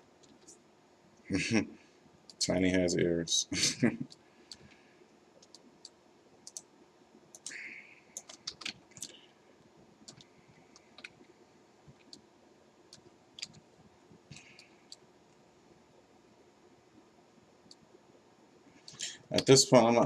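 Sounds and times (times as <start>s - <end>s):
mouse and keyboard clicking: 5.4s - 6.7s, 8.2s - 9.2s, 10.1s - 11.2s, 12.9s - 13.6s.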